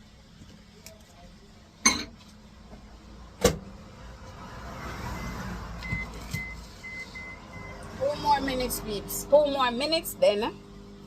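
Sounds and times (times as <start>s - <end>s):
microwave oven humming: 5.8s - 11.0s.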